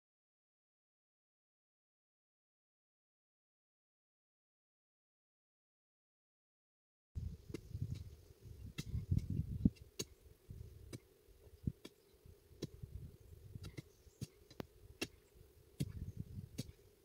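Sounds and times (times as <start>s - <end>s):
faint steady hum: 7.2s - 17.0s
dull low thuds: 15.8s - 16.8s.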